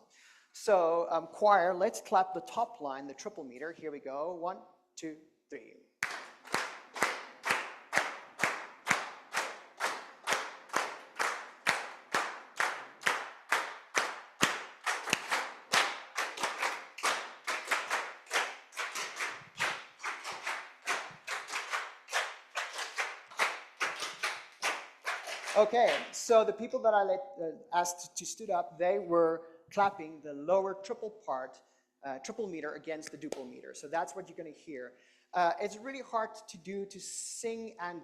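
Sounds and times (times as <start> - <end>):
choir clapping in unison: 6.0 - 26.2
group clapping a cross-rhythm: 6.0 - 26.4.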